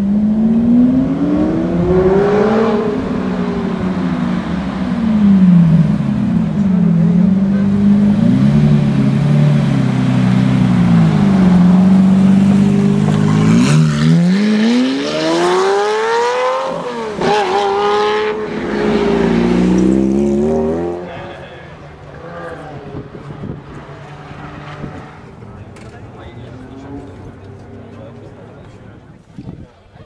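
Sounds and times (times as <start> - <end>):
sports car engine revving: 0.0 - 21.2.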